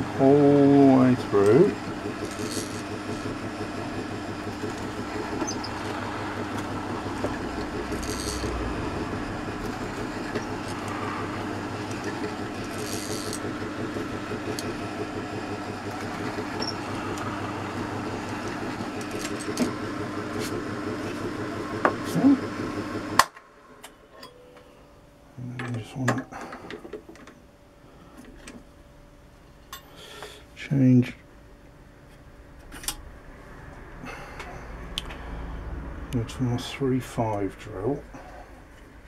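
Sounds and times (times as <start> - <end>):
electric drill running: 0.0 - 23.2.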